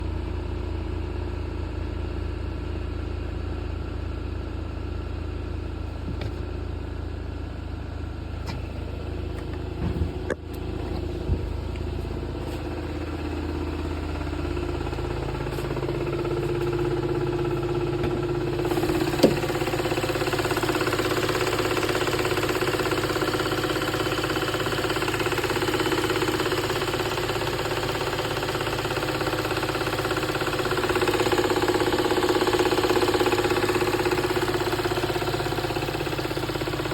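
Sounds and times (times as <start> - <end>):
car engine idling: 0.0 - 36.9
engine ticking: 8.2 - 36.9.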